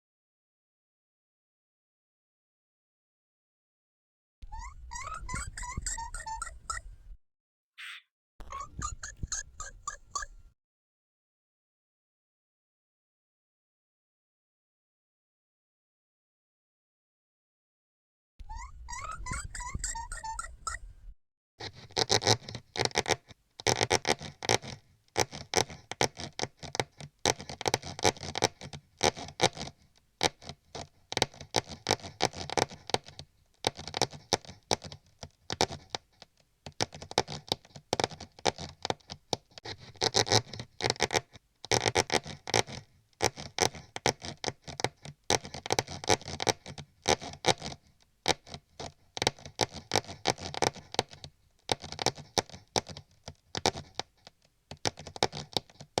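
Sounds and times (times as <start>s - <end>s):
mouse scratching and scurrying: 21.6s - 56.0s.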